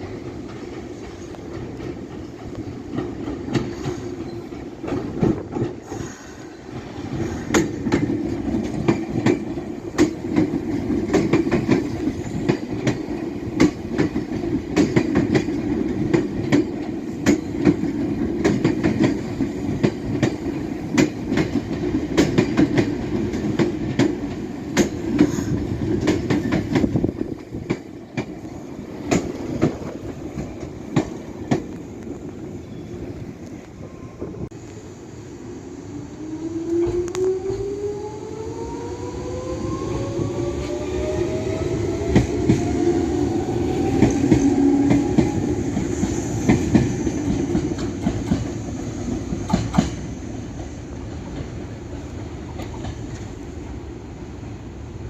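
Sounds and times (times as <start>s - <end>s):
electric train rumbling: 0.0s - 55.0s
wheels clicking over rail joints: 6.7s - 32.4s, 42.0s - 53.5s.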